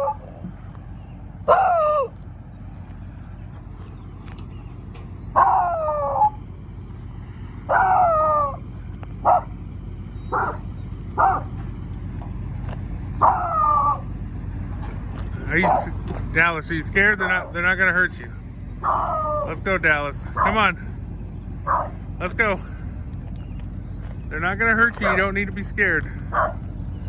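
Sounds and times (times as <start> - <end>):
dog barking and baying: 0.0 - 0.4, 1.4 - 2.2, 5.3 - 6.4, 7.7 - 8.6, 9.2 - 9.6, 10.2 - 11.6, 13.1 - 14.1, 15.5 - 16.0, 18.8 - 19.6, 20.3 - 20.8, 21.6 - 22.1, 24.9 - 25.4, 26.2 - 26.7.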